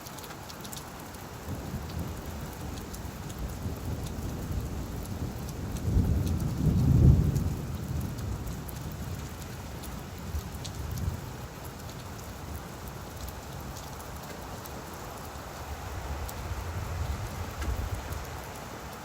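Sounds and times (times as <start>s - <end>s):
rain falling on leaves: 0.0s - 19.0s
thunder rumble: 1.5s - 11.4s, 15.6s - 18.6s.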